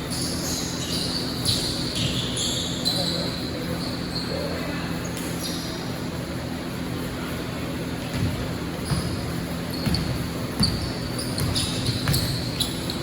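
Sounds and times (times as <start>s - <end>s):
shoes squeaking on court: 0.0s - 6.4s, 7.7s - 13.0s
basketball bouncing on gym floor: 8.0s - 13.0s.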